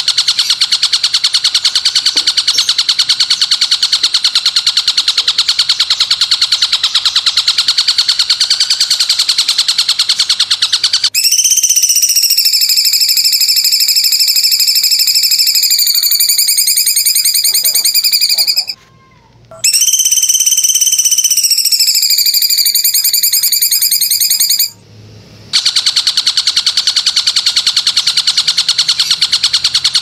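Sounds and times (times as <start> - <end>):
fast even songbird trill: 0.0 - 18.8, 19.6 - 24.8
high buzzing songbird trill: 0.0 - 18.8, 19.6 - 24.8.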